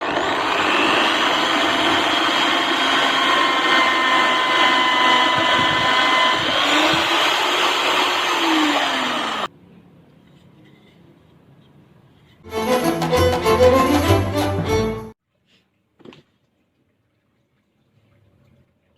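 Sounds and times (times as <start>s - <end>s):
electric drill running: 0.0s - 9.5s.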